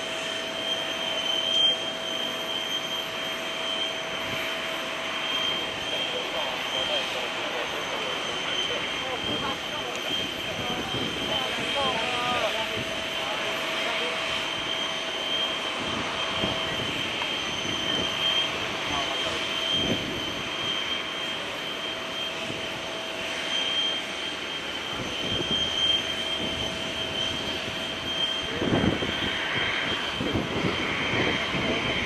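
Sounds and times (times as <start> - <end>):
jet engines whining: 0.0 - 32.0
wind on microphone: 9.0 - 13.1, 15.7 - 20.7, 26.4 - 32.0.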